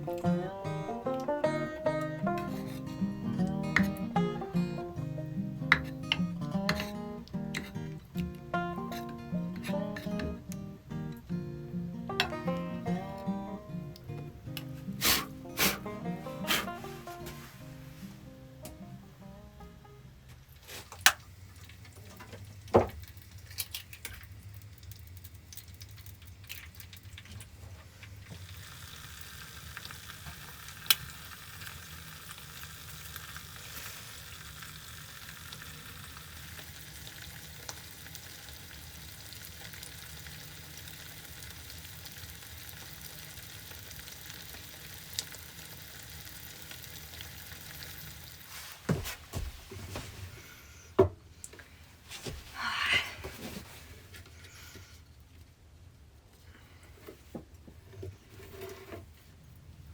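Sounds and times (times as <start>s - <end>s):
food sizzling in a frying pan: 0.0s - 11.2s, 28.3s - 48.8s.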